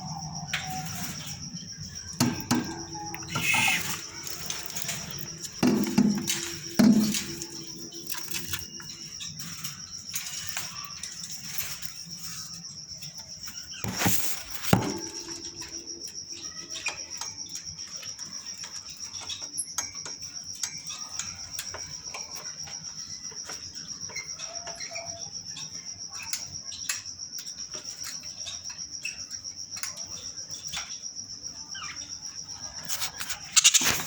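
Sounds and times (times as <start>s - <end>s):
parrot flapping its wings: 13.9s - 14.7s, 33.5s - 34.0s
small clicks and scuffs: 32.8s - 34.0s.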